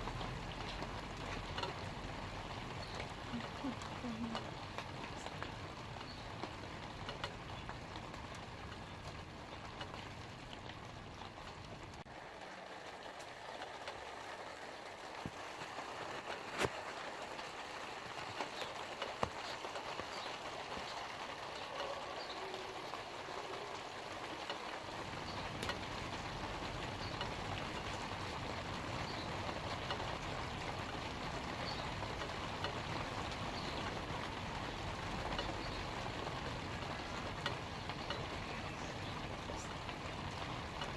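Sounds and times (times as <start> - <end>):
light rain on leaves: 0.0 - 40.9.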